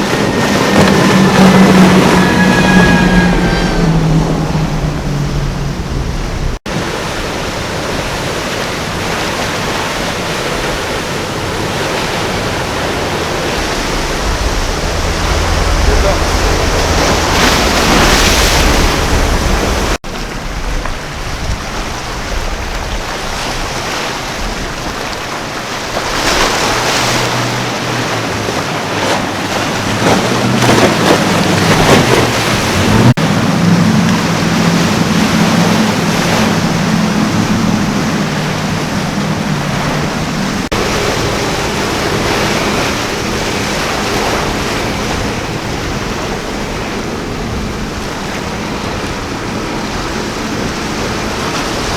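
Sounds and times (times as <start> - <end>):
wind on microphone: 0.0 - 7.9, 10.3 - 51.9
boat engines droning: 0.0 - 51.9
surf and churning water: 0.0 - 51.9.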